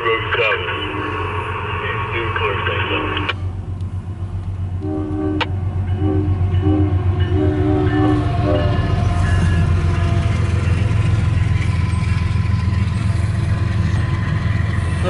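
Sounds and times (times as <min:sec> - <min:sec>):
locomotive engines rumbling: 0:00.0 - 0:15.0
locomotive air horn blasts: 0:04.8 - 0:08.9.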